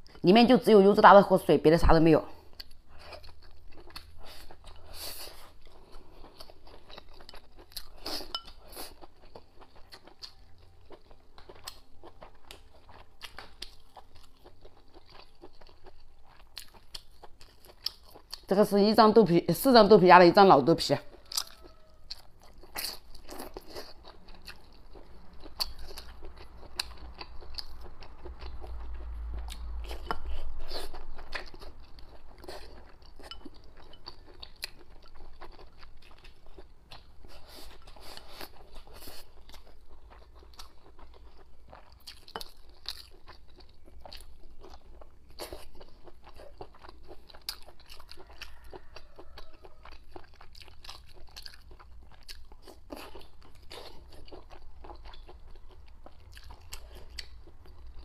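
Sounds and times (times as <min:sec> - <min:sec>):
person chewing and biting food: 0:02.5 - 0:18.5, 0:21.1 - 0:58.0.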